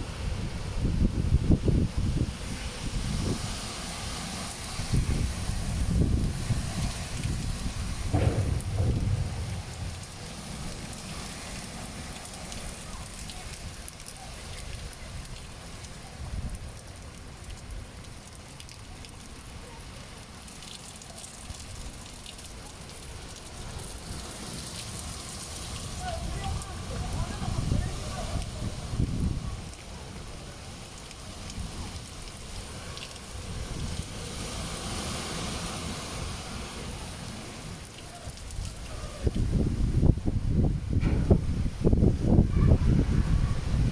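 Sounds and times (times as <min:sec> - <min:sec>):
heavy rain hissing: 0:00.0 - 0:18.2, 0:21.0 - 0:43.9
wind rumbling against microphone: 0:00.0 - 0:18.7, 0:23.2 - 0:43.9
raindrops ticking on surfaces: 0:01.4 - 0:40.2
low rumble: 0:08.1 - 0:11.0.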